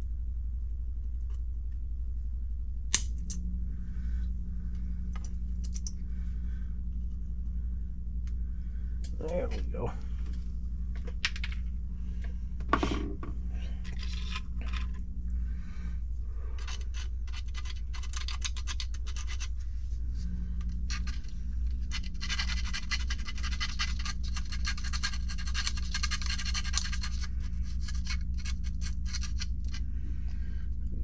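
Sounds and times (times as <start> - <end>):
file rasping on plastic: 16.6 - 19.5, 20.9 - 29.9.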